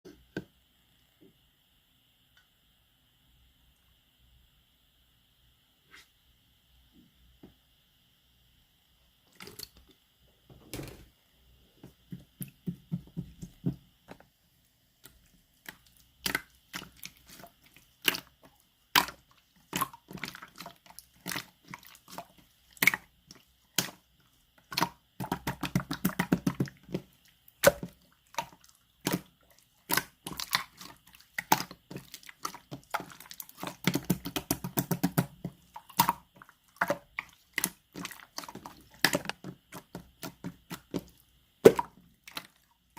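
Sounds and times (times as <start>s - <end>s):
slime crackling rapidly: 24.7s - 42.5s.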